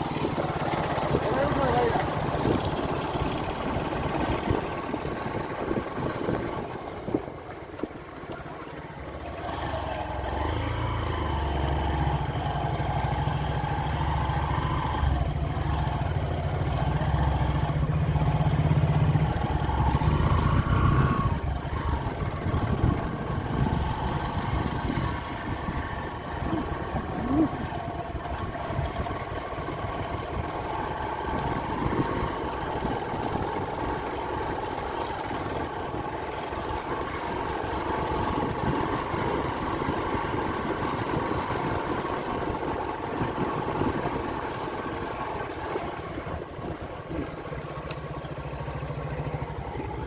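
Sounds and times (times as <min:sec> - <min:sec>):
motorcycle engine running: 0:00.0 - 0:50.0
rushing wind noise: 0:02.4 - 0:07.4.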